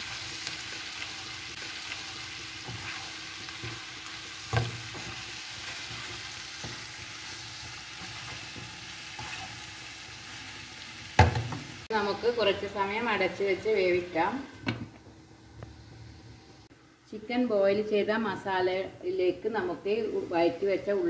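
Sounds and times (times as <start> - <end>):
vegetables sizzling in oil: 0.0 - 16.7
wooden spatula scraping pan: 2.6 - 9.6
spatula knocking on pan: 11.2 - 11.7.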